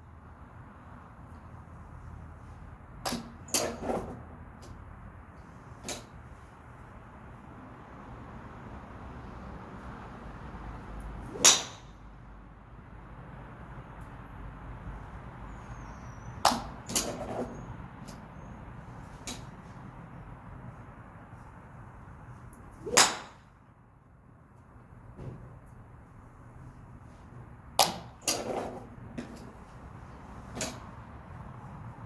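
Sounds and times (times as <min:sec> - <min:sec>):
golf clubs striking balls: 0:03.1 - 0:04.8, 0:11.3 - 0:12.0, 0:16.4 - 0:18.2, 0:22.6 - 0:23.5, 0:27.8 - 0:29.8.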